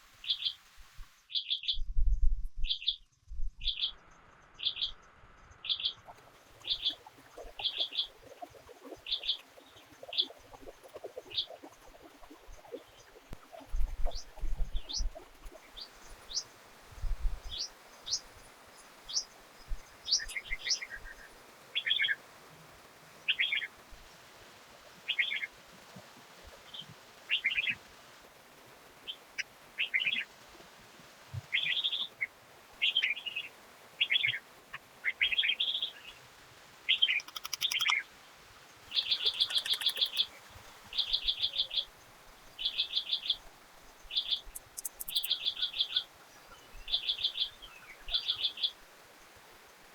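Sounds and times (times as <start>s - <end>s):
birds chirping and trilling: 36.9s - 38.1s, 38.9s - 42.0s, 42.6s - 48.8s.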